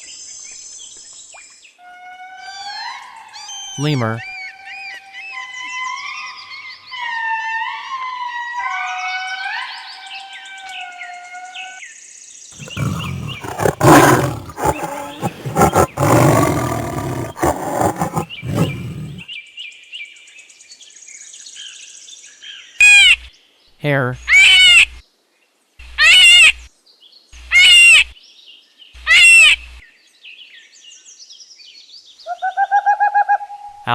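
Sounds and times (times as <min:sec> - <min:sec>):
harsh chorus of lemur calls: 0:12.6 - 0:19.2
lemurs wailing: 0:12.6 - 0:19.2.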